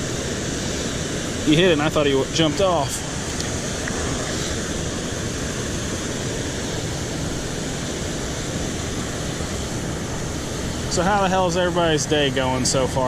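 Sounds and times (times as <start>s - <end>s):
water rushing over spillway: 0.0s - 13.0s.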